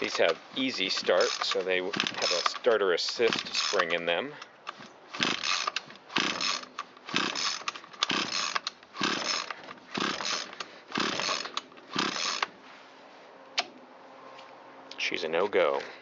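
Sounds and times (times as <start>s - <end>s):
recoil starter pulls cranking engine: 0.0s - 12.5s.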